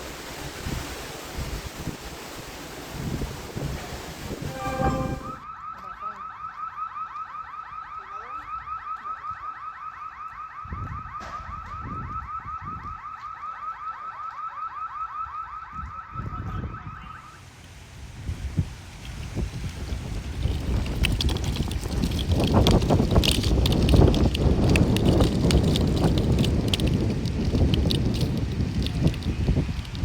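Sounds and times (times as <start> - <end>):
wind gusts on microphone: 0.0 - 5.4, 18.0 - 30.0
car alarm chirping: 11.8 - 17.4.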